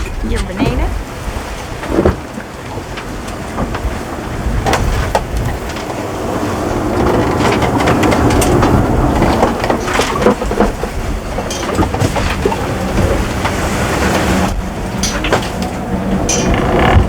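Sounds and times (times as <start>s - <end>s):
water rushing along hull: 0.0s - 17.0s
knocks and rattles: 6.9s - 17.0s.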